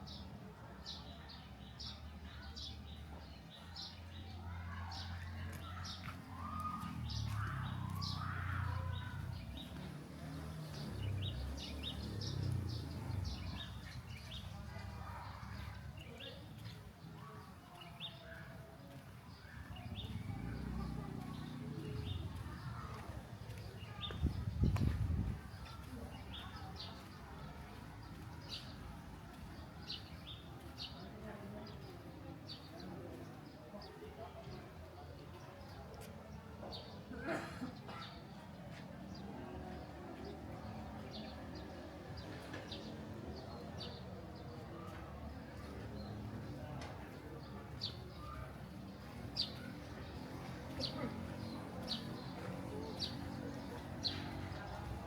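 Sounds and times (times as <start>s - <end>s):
small birds chirping: 0.0s - 34.8s, 38.2s - 55.0s
low steady background murmur: 0.0s - 55.0s
birds chirping: 39.8s - 55.0s.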